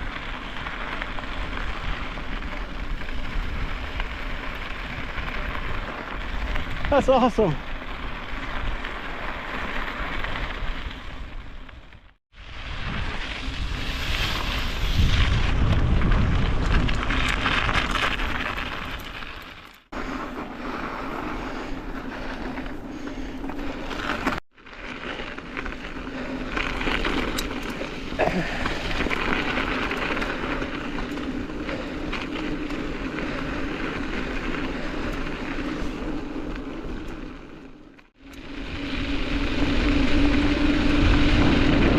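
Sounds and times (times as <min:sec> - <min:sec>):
bike tyre rumble: 0:00.0 - 0:41.9
wind buffeting microphone: 0:12.5 - 0:18.3, 0:38.3 - 0:41.9.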